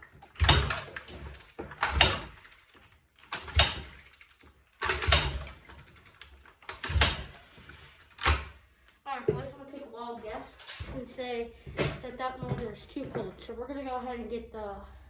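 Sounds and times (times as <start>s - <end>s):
dirt bike kick-start turnover: 0.4s - 2.6s, 4.8s - 5.7s, 6.7s - 7.5s.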